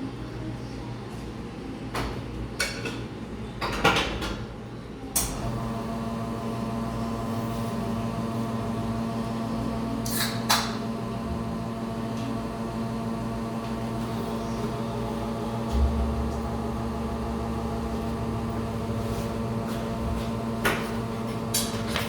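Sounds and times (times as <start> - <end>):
drink machine humming: 5.2 - 22.0.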